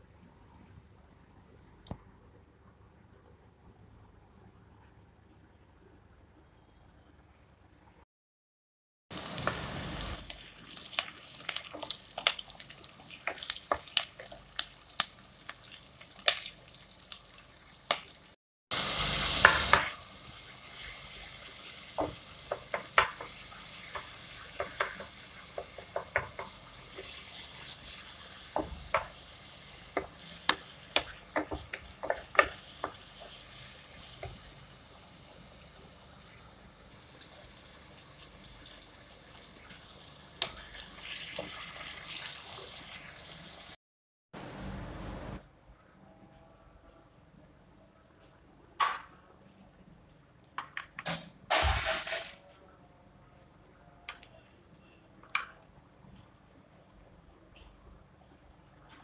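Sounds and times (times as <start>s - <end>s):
onions sizzling in hot oil: 9.1s - 43.8s
loud hiss: 18.7s - 21.8s
spatula scraping and tapping pan: 22.0s - 29.2s, 29.9s - 34.4s.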